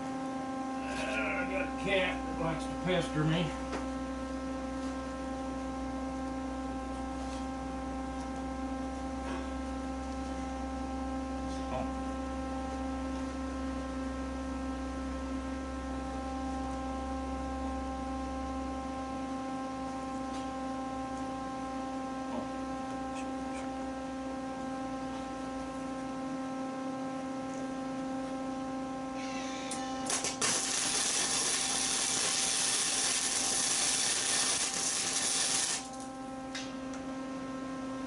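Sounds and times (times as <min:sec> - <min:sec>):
electrical hum: 0:00.0 - 0:38.0.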